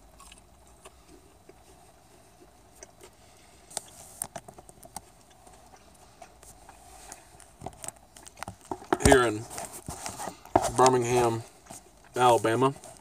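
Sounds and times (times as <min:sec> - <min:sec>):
chewing: 0:00.0 - 0:09.0.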